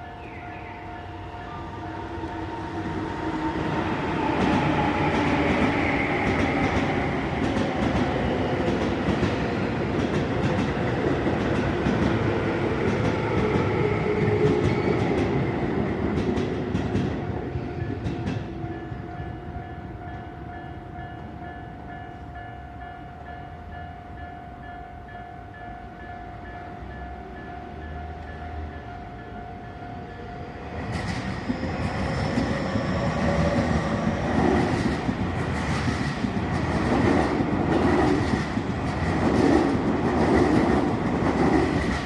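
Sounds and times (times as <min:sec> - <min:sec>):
train rumbling with clicking wheels: 0:00.0 - 0:42.0
level crossing warning bell: 0:18.7 - 0:30.6.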